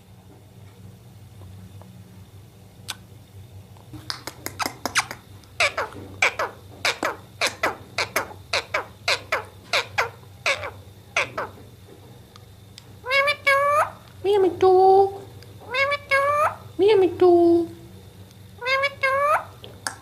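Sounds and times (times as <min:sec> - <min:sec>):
parrot calling: 0:04.5 - 0:11.6, 0:13.0 - 0:14.1, 0:15.6 - 0:16.8, 0:18.6 - 0:19.6.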